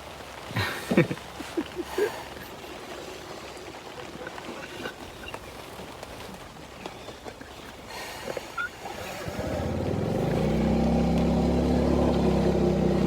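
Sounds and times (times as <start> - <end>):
rain hissing: 7.5 - 13.0.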